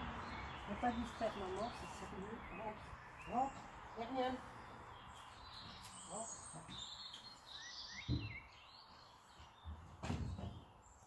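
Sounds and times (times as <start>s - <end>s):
small birds chirping: 0.0s - 11.0s
dull low thump: 8.0s - 8.4s.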